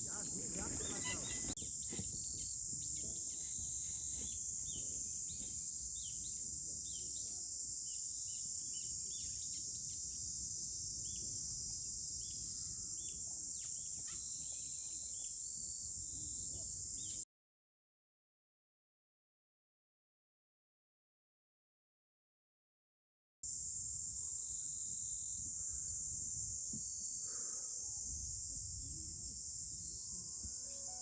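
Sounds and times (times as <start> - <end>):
insect chorus: 0.0 - 17.2, 23.5 - 31.0.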